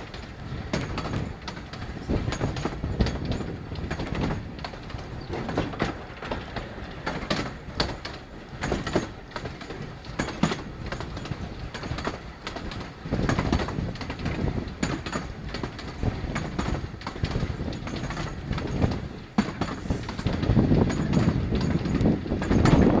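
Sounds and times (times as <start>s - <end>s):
train rumbling along track: 0.0s - 23.0s
wheels clicking on rails: 0.0s - 23.0s.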